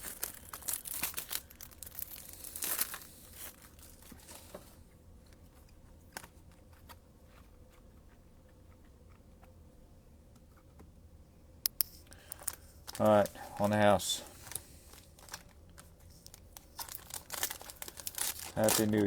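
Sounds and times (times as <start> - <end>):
plastic wrapping crinkling and tearing: 0.0 - 4.5, 12.1 - 19.0
faint handling clicks: 11.7 - 13.8.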